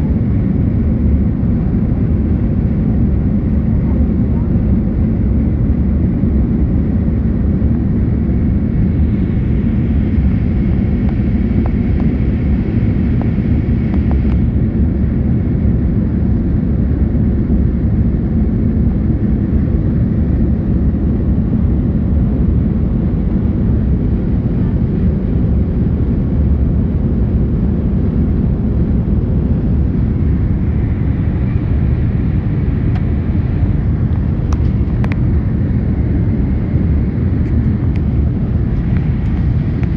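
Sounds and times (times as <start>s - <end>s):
jet airliner engines roaring: 0.0s - 39.9s.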